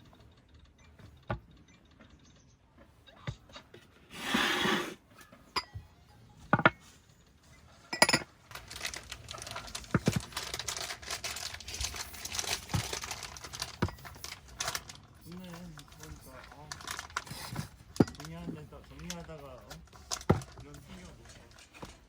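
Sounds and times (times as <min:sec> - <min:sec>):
plastic bag rustling: 0:07.7 - 0:22.0
objects clinking set down: 0:07.9 - 0:22.0.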